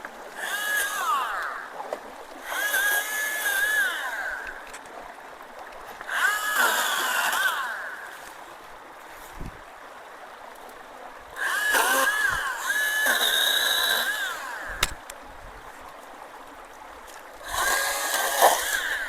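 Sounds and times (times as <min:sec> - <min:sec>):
chainsaw cutting a root: 0:00.4 - 0:01.7, 0:02.4 - 0:04.7, 0:06.1 - 0:08.0, 0:11.4 - 0:15.0, 0:17.4 - 0:19.0.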